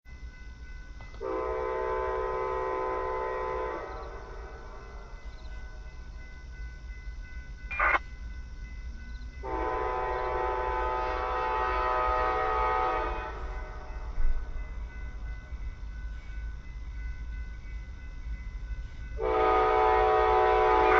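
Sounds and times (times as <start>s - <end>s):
train air horn blasts: 1.2s - 5.1s, 9.4s - 14.5s, 19.2s - 20.9s.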